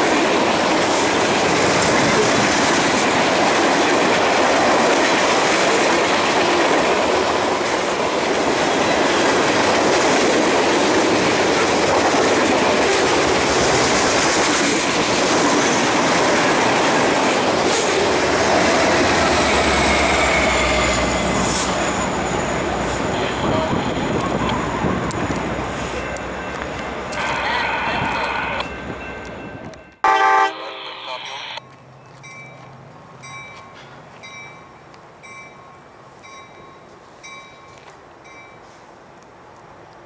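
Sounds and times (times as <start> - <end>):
railroad cars rolling past: 0.0 - 40.0
wheels clacking over rail joints: 23.4 - 27.2.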